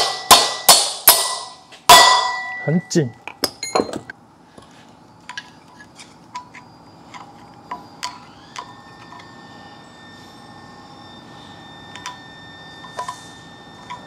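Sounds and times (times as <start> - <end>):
metal tools tapping and clinking: 2.2 - 4.1.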